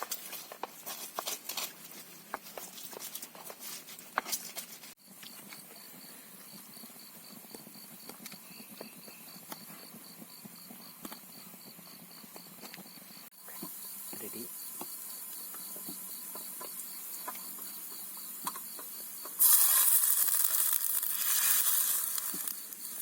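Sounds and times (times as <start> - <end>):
faint rain hiss: 13.4 - 23.0
rain pattering on tent fabric: 19.4 - 23.0.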